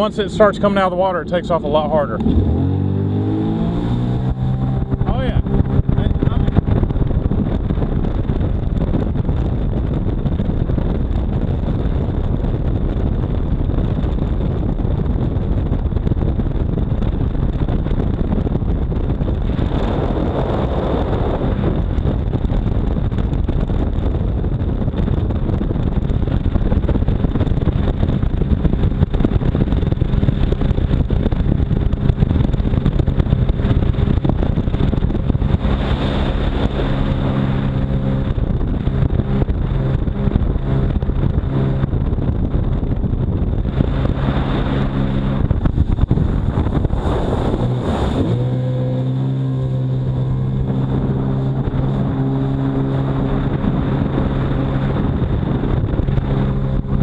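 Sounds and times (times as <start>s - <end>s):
jet ski engine running: 0.0s - 57.0s
wind on microphone: 0.0s - 57.0s.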